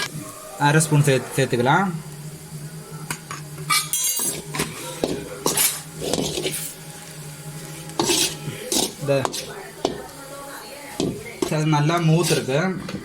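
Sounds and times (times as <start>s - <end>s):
metal spoon scraping a pan: 3.6s - 7.0s, 7.6s - 10.2s, 10.9s - 13.0s.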